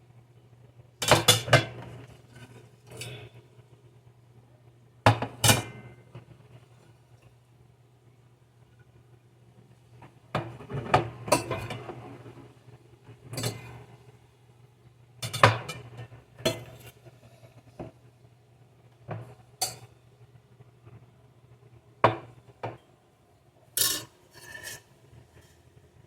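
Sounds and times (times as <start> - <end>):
dishes and cutlery clattering: 13.4 - 13.8, 23.8 - 25.5.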